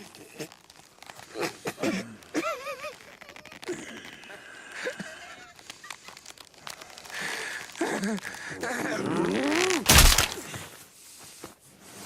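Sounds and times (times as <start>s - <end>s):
rustling: 2.4s - 12.0s.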